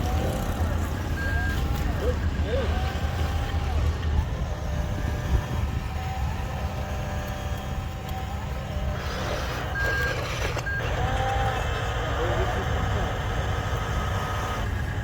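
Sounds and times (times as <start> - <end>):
reversing alarm beeping: 0.0 - 3.7, 8.6 - 15.0
truck engine rumbling: 0.0 - 15.0.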